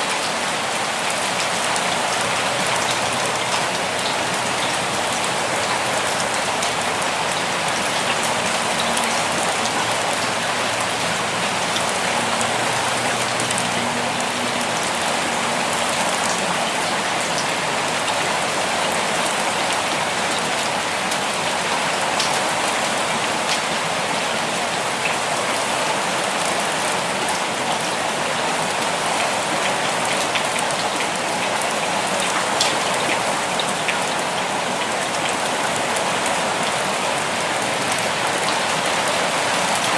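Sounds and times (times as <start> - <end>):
raindrops ticking: 0.2 - 22.8.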